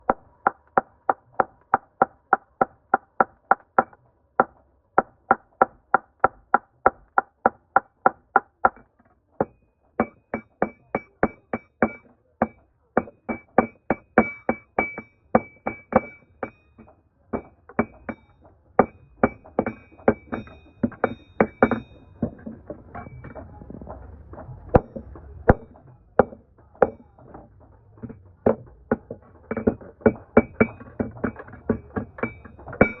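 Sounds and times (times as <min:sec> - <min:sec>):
hammer ringing on steel anvil: 0:09.4 - 0:22.3, 0:32.2 - 0:33.0.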